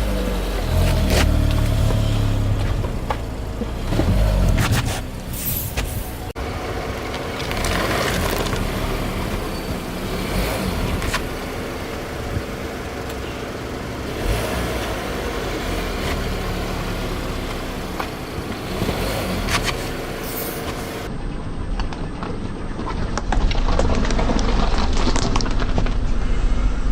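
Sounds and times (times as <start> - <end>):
car engine running at low speed: 0.0 - 21.1
tyres crushing objects: 0.1 - 6.1.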